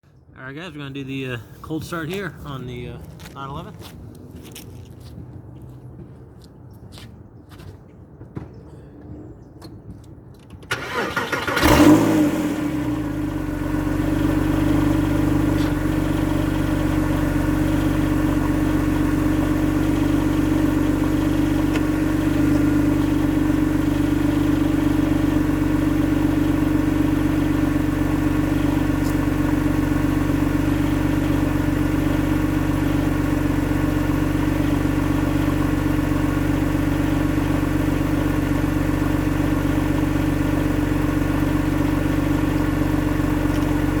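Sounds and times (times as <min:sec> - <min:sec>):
starter motor cranking: 0:10.7 - 0:12.3
car engine idling: 0:10.7 - 0:44.0.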